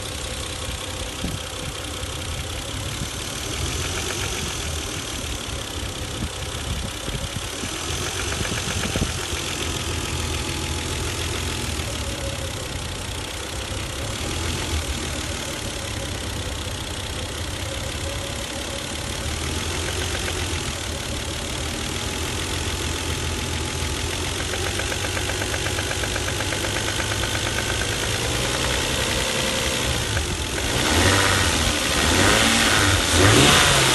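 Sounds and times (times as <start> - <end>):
car engine idling: 0.0 - 33.9
engine knock: 0.0 - 33.9.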